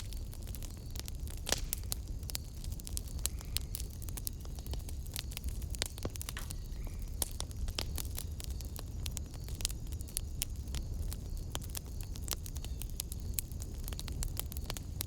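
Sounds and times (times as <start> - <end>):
low rumble of fire: 0.0 - 15.0
wood fire popping and snapping: 0.0 - 15.0.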